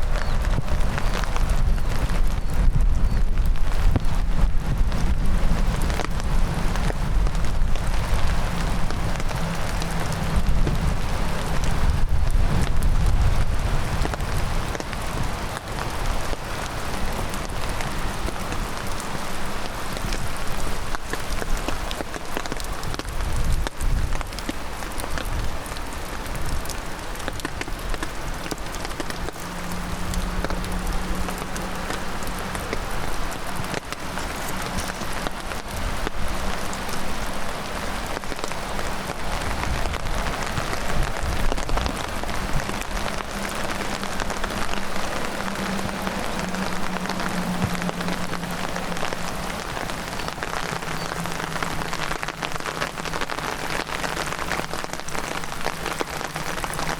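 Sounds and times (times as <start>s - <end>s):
heavy rain falling: 0.0s - 56.9s
low rumble: 27.4s - 53.8s.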